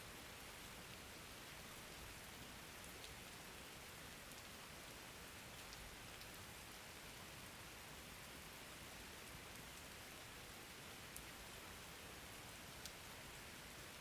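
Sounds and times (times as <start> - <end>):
faint steady rain: 0.0 - 14.0
light raindrop ticks: 2.2 - 3.4, 4.2 - 6.4, 9.2 - 10.0, 12.3 - 13.2.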